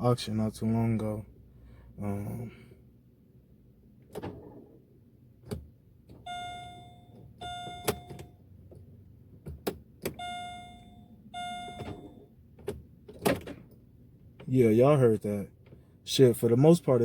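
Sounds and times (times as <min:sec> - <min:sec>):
ignition clicks: 0:05.4 - 0:10.8
dashboard warning chime: 0:06.2 - 0:08.5, 0:10.2 - 0:12.4.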